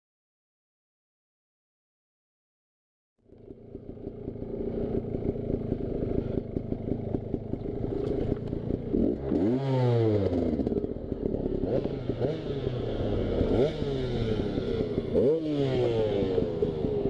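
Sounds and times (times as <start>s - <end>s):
dirt bike engine revving: 4.1s - 17.0s.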